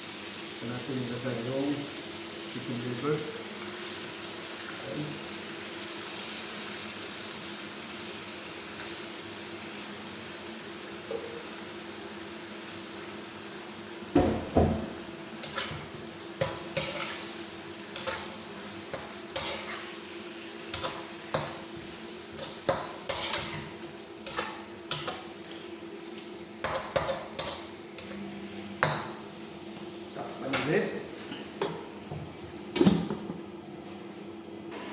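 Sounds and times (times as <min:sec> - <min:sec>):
food sizzling in a pan: 0:00.0 - 0:29.4
metal utensil scraping a pan: 0:15.4 - 0:17.3, 0:18.9 - 0:20.0, 0:22.4 - 0:25.3, 0:26.6 - 0:28.2.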